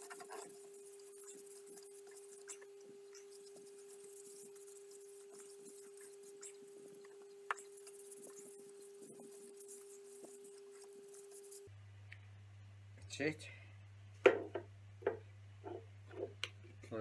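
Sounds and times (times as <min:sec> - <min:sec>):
rustling and scratching of wiping: 0:00.0 - 0:11.7
faint steady hum: 0:00.0 - 0:17.0.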